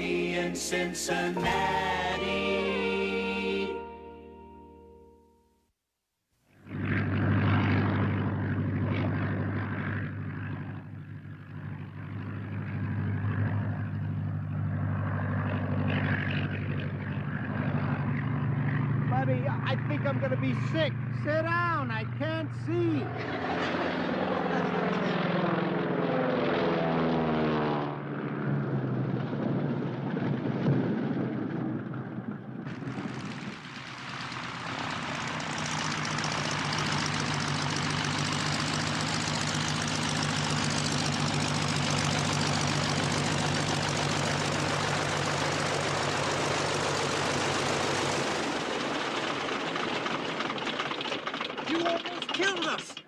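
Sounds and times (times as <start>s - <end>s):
propeller plane engine drone: 0.0s - 4.9s, 6.5s - 53.0s.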